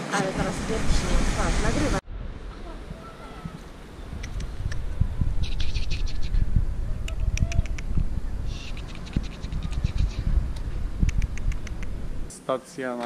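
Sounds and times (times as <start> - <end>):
wind rumbling on microphone: 0.0 - 12.3
sharp clicking scratches: 7.1 - 8.0, 8.6 - 10.2, 11.0 - 11.9.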